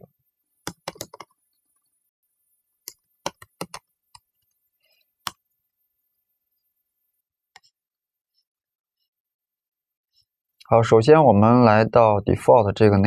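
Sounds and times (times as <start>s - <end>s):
keyboard keys clicking: 0.7s - 1.3s, 2.9s - 3.8s.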